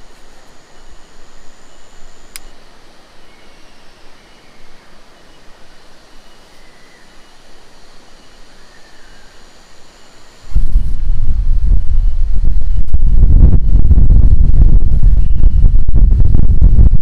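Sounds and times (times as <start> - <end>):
steady outdoor hiss: 0.0 - 17.0
faint high chirps: 3.2 - 10.4
wind buffeting microphone: 10.5 - 17.0.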